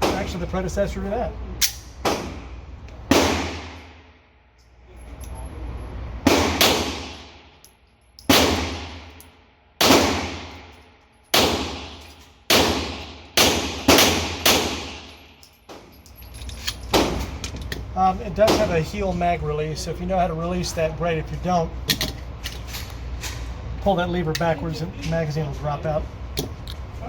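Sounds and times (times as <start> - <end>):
echoing gunshots indoors: 1.6 - 4.4, 6.2 - 7.6, 8.2 - 15.4.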